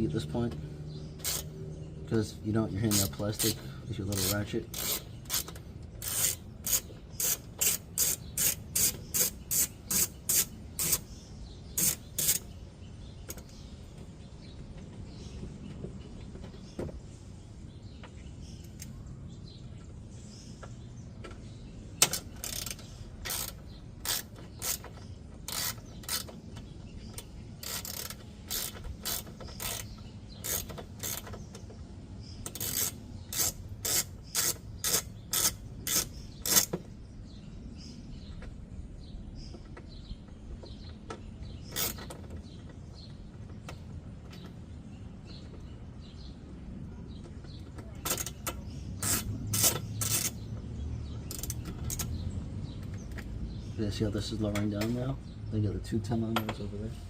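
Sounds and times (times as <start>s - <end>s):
hand ratchet clicking: 1.2s - 1.5s, 2.8s - 11.1s, 11.8s - 12.5s, 22.0s - 26.4s, 27.2s - 31.4s, 32.4s - 36.8s, 41.7s - 42.2s, 48.0s - 50.4s, 51.3s - 52.1s.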